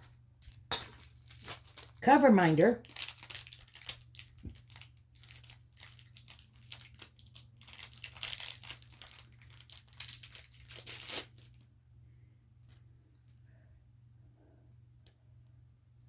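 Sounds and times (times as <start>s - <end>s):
packaging crinkling and tearing: 0.7s - 2.0s, 2.8s - 11.7s.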